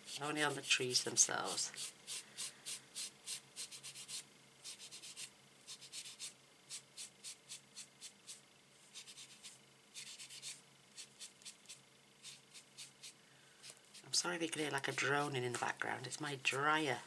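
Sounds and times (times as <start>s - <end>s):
sponge scratching on cardstock: 0.0s - 13.2s
faint tumble dryer drone: 10.2s - 17.0s.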